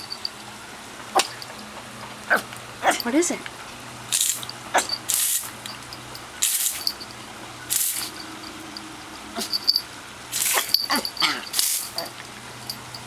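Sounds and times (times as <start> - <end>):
hose spray hissing: 4.1 - 5.7, 6.4 - 7.0, 7.7 - 8.2, 9.4 - 12.1.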